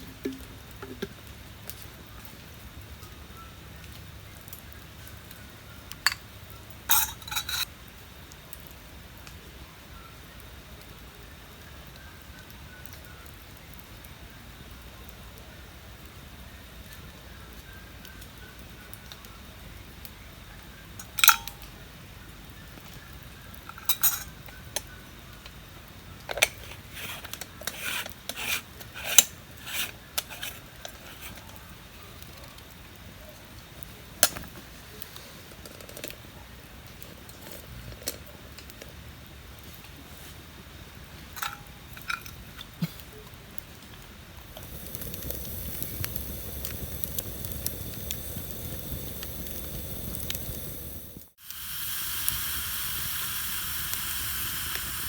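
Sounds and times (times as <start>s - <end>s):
metal utensils clinking on cookware: 6.9s - 7.7s, 23.7s - 24.4s, 41.4s - 42.4s.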